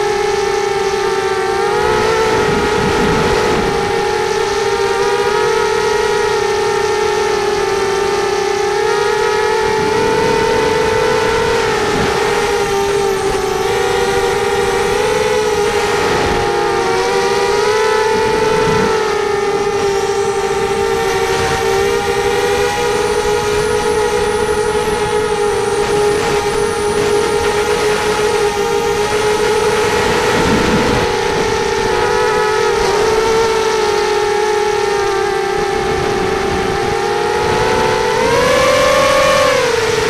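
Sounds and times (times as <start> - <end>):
quadcopter motors whining: 0.0 - 40.0.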